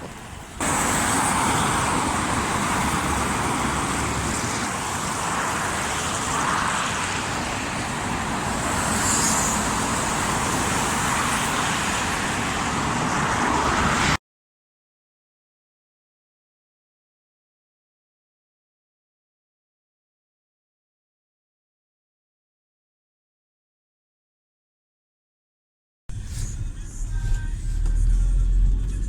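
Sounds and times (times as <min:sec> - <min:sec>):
road traffic passing: 0:00.0 - 0:14.2, 0:26.1 - 0:29.0.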